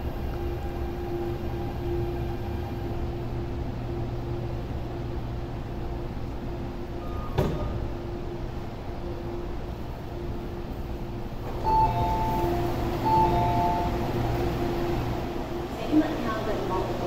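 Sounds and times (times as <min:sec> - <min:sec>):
train humming with held tone: 0:00.0 - 0:17.0.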